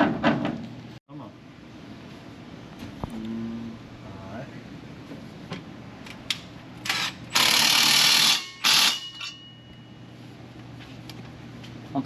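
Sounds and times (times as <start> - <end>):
power tool bursts: 6.9 - 9.3.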